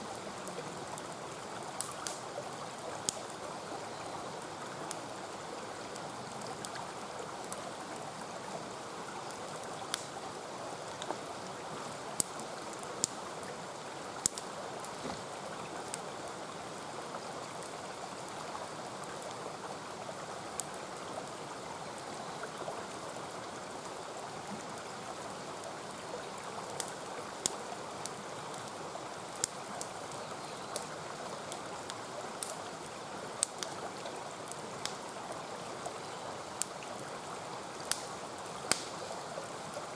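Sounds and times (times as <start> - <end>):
mountain stream rushing: 0.0 - 39.9
campfire crackling and popping: 0.4 - 3.7, 9.5 - 11.4, 12.2 - 13.3, 14.2 - 16.1, 20.5 - 20.8, 26.6 - 30.0, 30.7 - 32.6, 33.3 - 35.4, 37.7 - 39.1.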